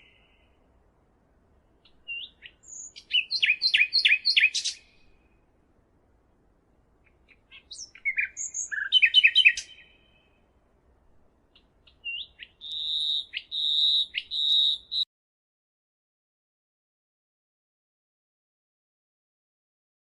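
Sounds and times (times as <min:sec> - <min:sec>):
songbird chirps and trills: 0:00.0 - 0:05.6, 0:06.8 - 0:15.1
bird high whistled notes: 0:12.1 - 0:15.0.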